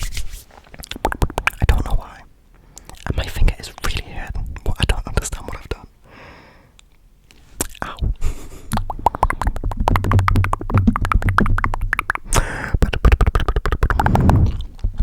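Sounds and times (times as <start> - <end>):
tongue clicks and wet mouth pops: 0.7 - 1.8, 8.7 - 15.0.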